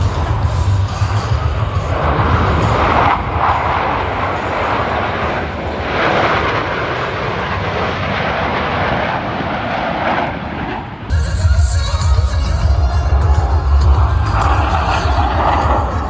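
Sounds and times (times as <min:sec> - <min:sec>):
music: 0:00.0 - 0:03.4, 0:11.1 - 0:16.0
aircraft engine roar: 0:00.0 - 0:16.0.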